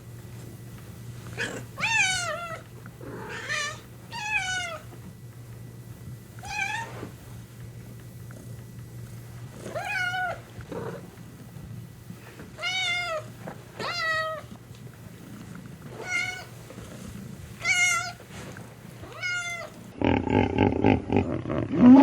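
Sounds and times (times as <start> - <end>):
cat meowing: 1.4 - 2.6, 3.3 - 4.9, 6.4 - 7.0, 9.7 - 10.4, 12.6 - 13.2, 13.8 - 14.5, 16.0 - 16.5, 17.6 - 18.2, 19.0 - 19.8.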